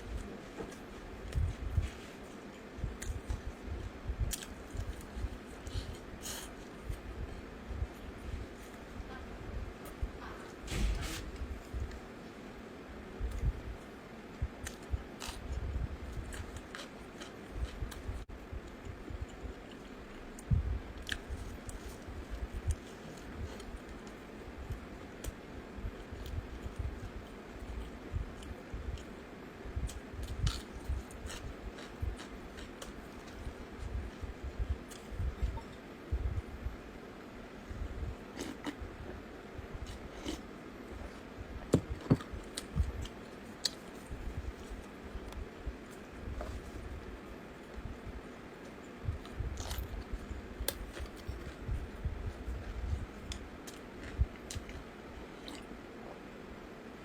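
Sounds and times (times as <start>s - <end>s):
person chewing food: 14.6s - 25.4s, 29.9s - 35.9s, 48.6s - 55.8s
person chewing: 16.2s - 18.0s, 38.3s - 38.8s, 49.2s - 55.8s.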